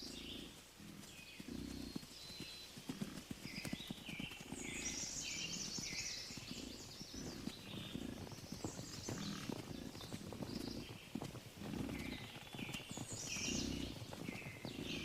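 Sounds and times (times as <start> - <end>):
low animal grunts: 0.0 - 2.0, 6.4 - 8.4, 9.1 - 10.9, 11.6 - 12.6, 13.4 - 14.0, 14.7 - 15.0
high bird calls: 0.0 - 15.0
hoofbeats of running herd: 0.0 - 15.0.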